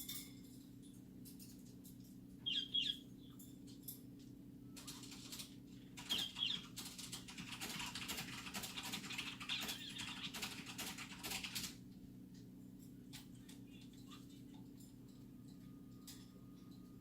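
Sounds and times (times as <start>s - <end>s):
steady low hum: 0.0s - 17.0s
parrot chirps: 2.4s - 3.4s, 6.1s - 6.7s.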